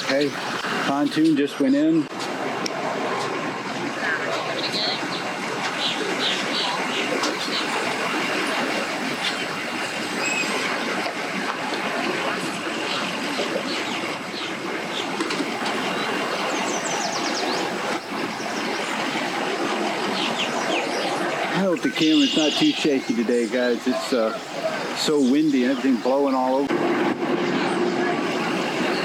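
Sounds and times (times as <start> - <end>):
bird chirps: 10.1 - 10.6, 21.6 - 26.5.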